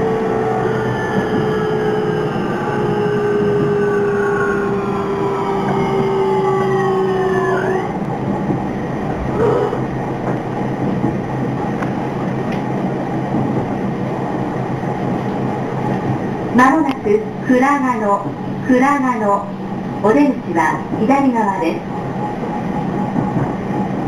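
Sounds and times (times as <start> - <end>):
train traction motor whine: 0.0 - 10.9
train wheels rumbling on rails: 0.0 - 24.0.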